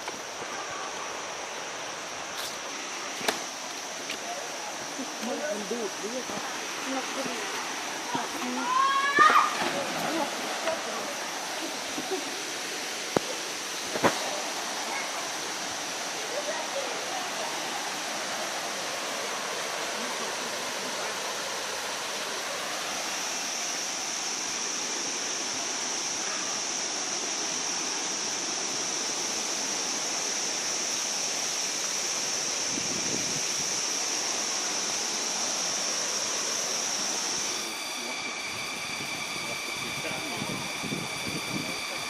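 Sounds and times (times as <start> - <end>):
waterfall rushing: 0.0 - 42.0
high-pitched steady tone: 35.8 - 42.0.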